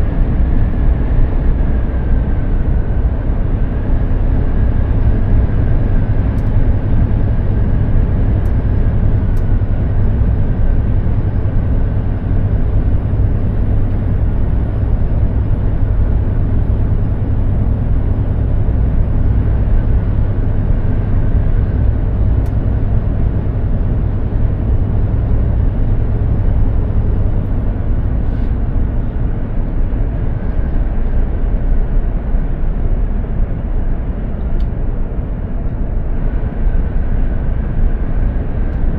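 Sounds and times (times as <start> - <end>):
truck diesel engine droning: 0.0 - 38.9.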